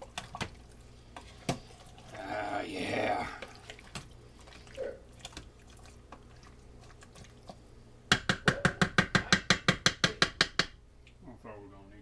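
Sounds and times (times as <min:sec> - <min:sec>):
faint drips: 0:00.0 - 0:07.8
sharp taps on cookware: 0:08.1 - 0:10.8.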